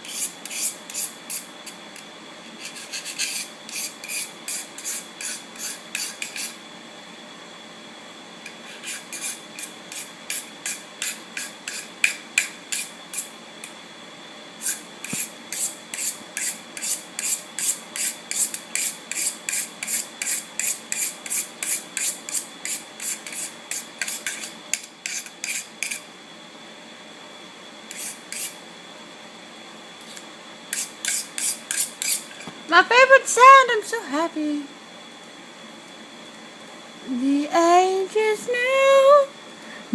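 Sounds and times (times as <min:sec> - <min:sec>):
rasping rubbing strokes: 0:02.6 - 0:06.6.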